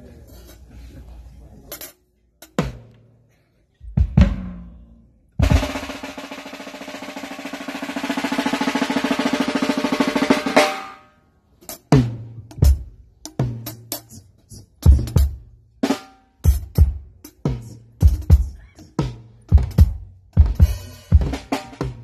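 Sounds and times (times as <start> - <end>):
drum hits: 3.9 - 4.8, 5.4 - 11.0
drum roll: 3.9 - 4.8, 5.4 - 11.1, 14.8 - 22.0.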